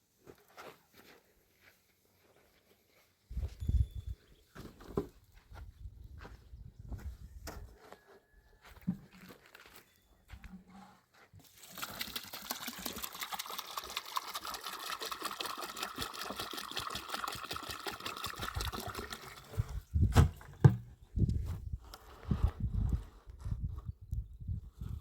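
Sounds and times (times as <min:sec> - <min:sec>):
water pouring: 0:11.4 - 0:20.8.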